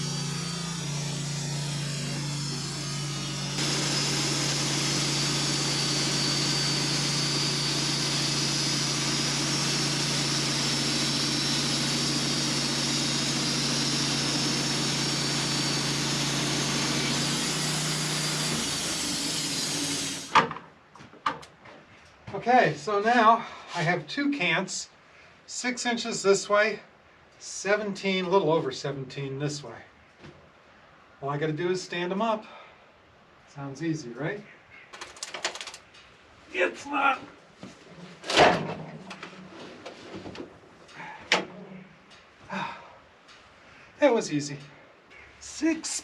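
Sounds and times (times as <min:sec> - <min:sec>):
saw blade cutting log: 0:00.0 - 0:20.4
sawmill engine running: 0:00.0 - 0:20.4.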